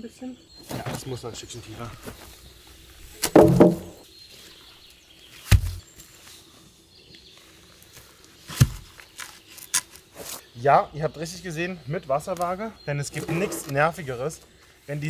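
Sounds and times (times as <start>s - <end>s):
knocks and thumps on wood: 3.2s - 4.0s, 5.5s - 5.8s.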